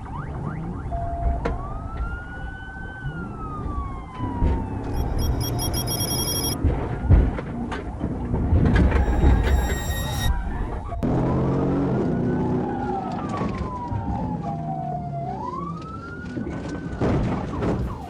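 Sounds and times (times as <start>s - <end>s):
police siren wailing: 0.0s - 6.6s, 11.8s - 18.0s
high ringing tone: 4.9s - 6.6s, 8.8s - 11.0s.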